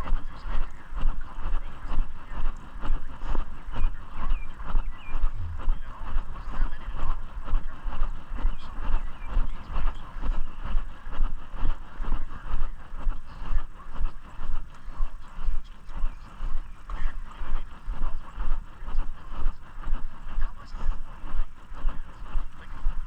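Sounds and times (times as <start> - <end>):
low microphone rumble: 0.0 - 23.0.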